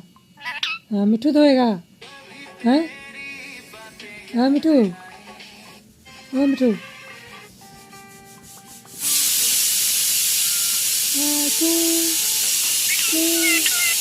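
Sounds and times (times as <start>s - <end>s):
loud steady hissing: 7.2s - 14.0s.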